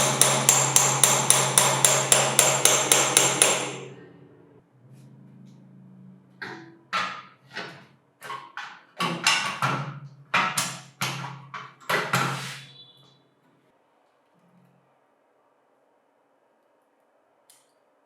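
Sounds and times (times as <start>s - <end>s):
hammer tapping: 0.0s - 3.9s.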